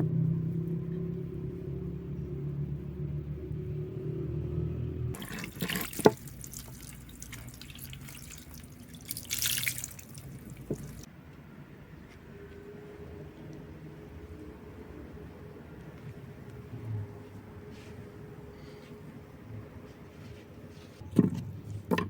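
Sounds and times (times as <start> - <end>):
water pouring and splashing: 5.2 - 11.1.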